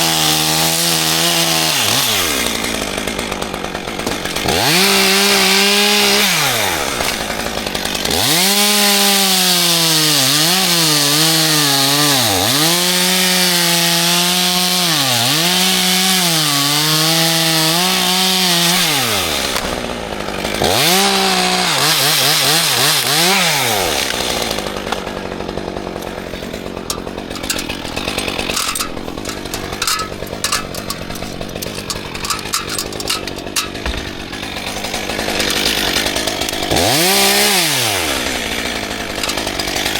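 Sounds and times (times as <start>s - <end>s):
chainsaw cutting wood: 0.0s - 39.9s
clicks and rustling: 25.9s - 36.8s, 39.1s - 39.9s.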